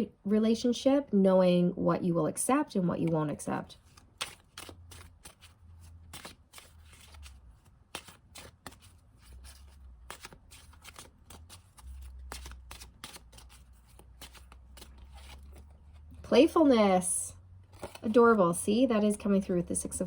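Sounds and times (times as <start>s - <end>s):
cards being shuffled: 3.8s - 16.3s, 17.7s - 18.4s.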